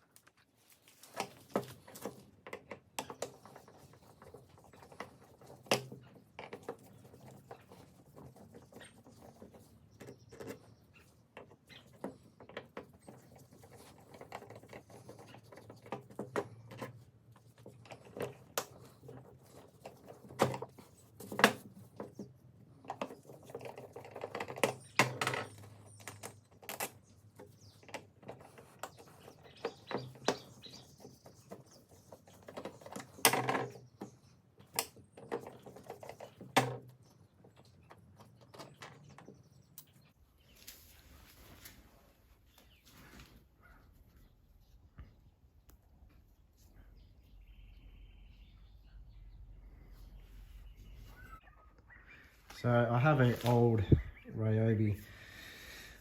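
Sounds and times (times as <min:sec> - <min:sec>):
clicks taps and knocks of parts: 0:01.0 - 0:30.8, 0:31.5 - 0:40.0.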